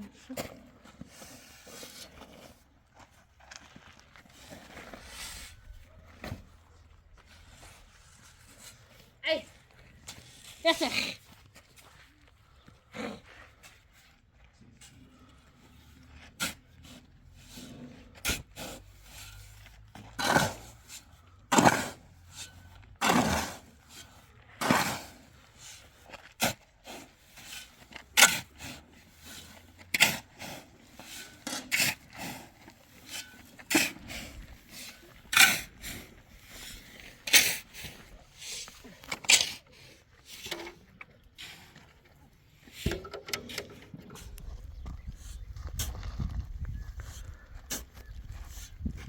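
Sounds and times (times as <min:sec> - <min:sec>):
hand tool scraping: 0:00.3 - 0:02.6, 0:03.8 - 0:06.5, 0:14.8 - 0:44.5.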